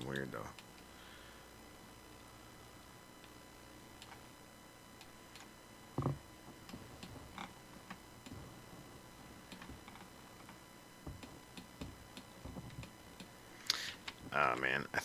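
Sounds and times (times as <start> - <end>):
loud thump: 6.0 - 6.2.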